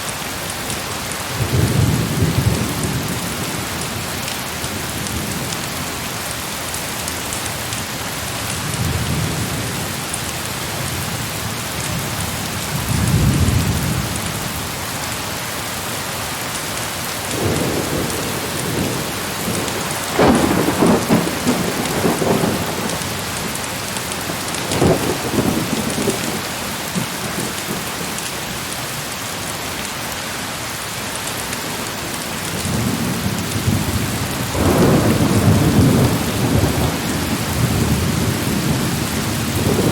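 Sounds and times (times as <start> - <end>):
heavy rain falling: 0.0 - 39.9
thunder rumbling: 17.3 - 28.2, 32.5 - 39.9.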